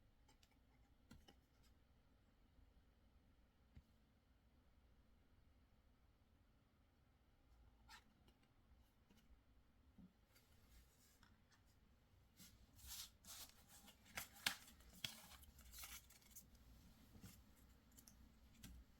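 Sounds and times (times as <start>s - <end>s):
cards and paper rustling: 12.8s - 18.9s.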